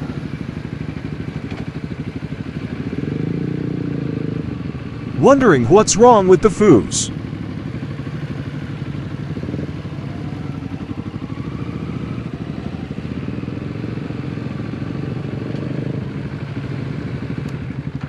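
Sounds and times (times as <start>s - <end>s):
motorcycle engine running: 0.0s - 5.1s, 7.1s - 18.0s.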